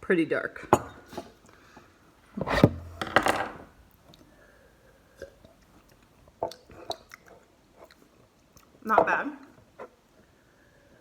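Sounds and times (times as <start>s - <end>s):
cup clicking and knocking: 2.6s - 3.7s.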